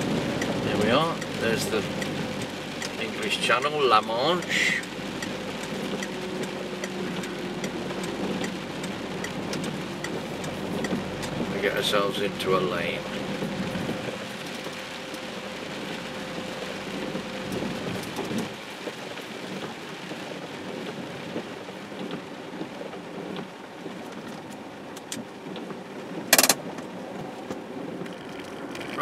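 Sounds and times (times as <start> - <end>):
rain on a car roof: 0.0 - 29.0
sharp knock: 26.4 - 26.6.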